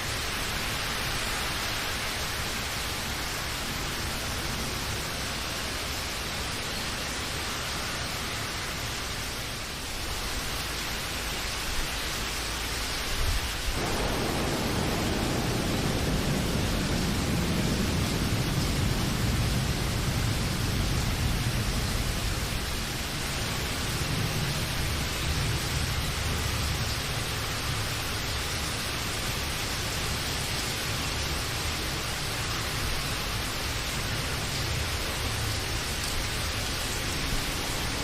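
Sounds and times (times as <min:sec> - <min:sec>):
rain falling: 0:00.0 - 0:38.0
low rumble: 0:13.8 - 0:23.0.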